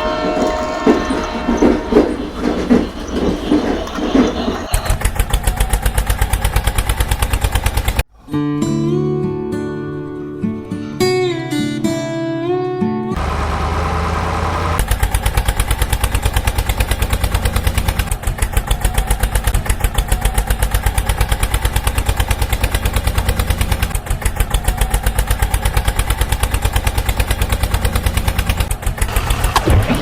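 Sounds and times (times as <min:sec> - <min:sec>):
tractor engine putt-putt: 0:00.0 - 0:08.1, 0:13.2 - 0:30.0.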